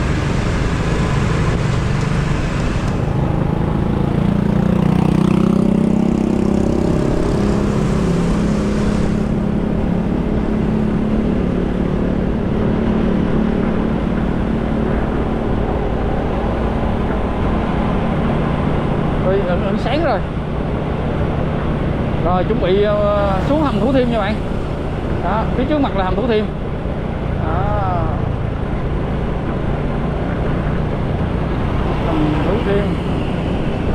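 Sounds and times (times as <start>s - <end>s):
motorcycle engine running: 0.0s - 33.9s
wind and road noise: 0.0s - 33.9s.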